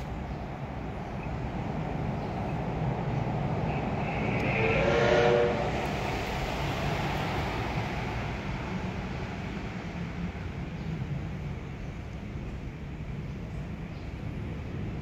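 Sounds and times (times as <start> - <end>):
train rumbling: 0.0 - 15.0
train horn: 3.7 - 6.0.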